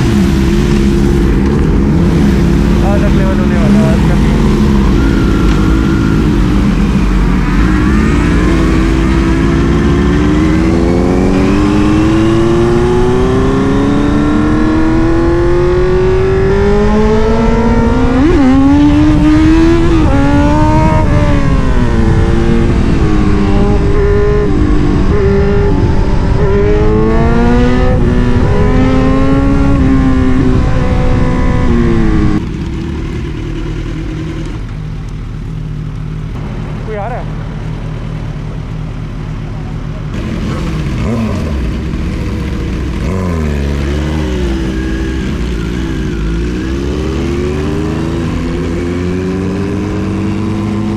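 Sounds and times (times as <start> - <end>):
motorcycle engines revving: 0.0 - 50.9.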